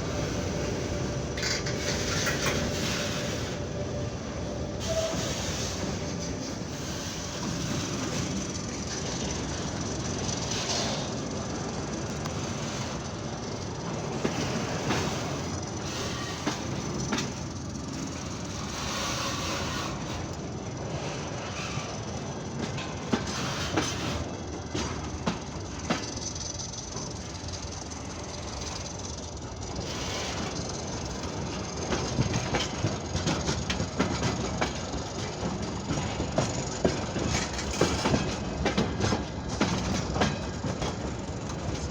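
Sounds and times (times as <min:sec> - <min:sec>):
high wheel squeal: 0:00.0 - 0:08.5, 0:18.5 - 0:20.3
train wagons rumbling: 0:00.0 - 0:41.9
wheels clacking over rail joints: 0:00.0 - 0:41.9.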